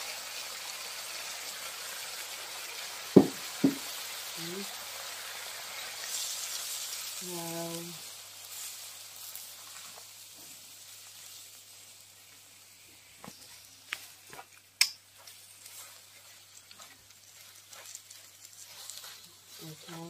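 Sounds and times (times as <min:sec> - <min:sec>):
leaves and egg sizzling in a wok: 0:00.0 - 0:20.0
wooden spatula scraping a pan: 0:15.2 - 0:20.0.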